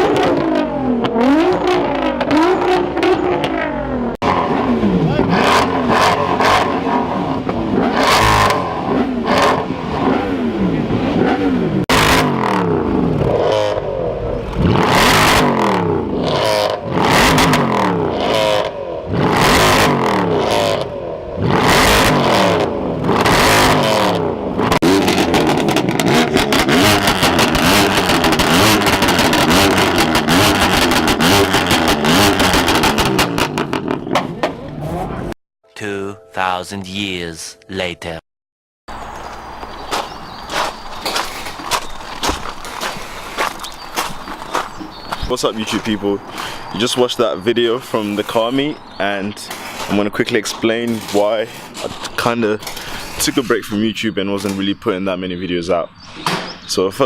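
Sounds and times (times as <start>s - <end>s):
car engines revving: 0.0s - 35.4s, 38.9s - 57.0s.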